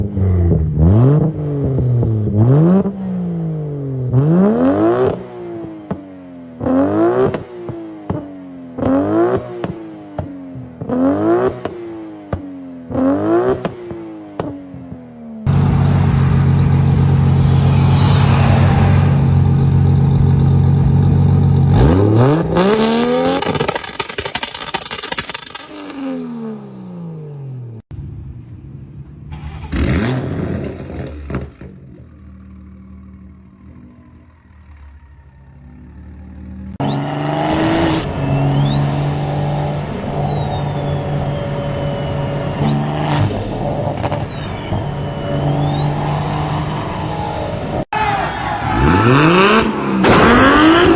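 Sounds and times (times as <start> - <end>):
car engine revving: 0.0 - 27.8, 29.3 - 50.9
high whistling engine tones: 15.5 - 21.0, 32.3 - 50.9.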